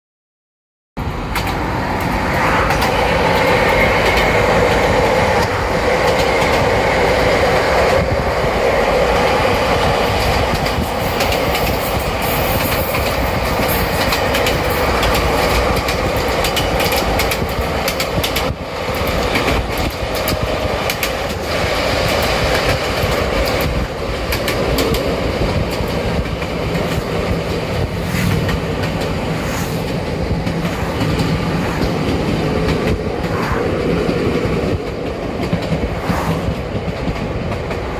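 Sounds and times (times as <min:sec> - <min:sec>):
electric train rumbling: 0:01.0 - 0:37.9
wheels clicking over rail joints: 0:10.1 - 0:27.9.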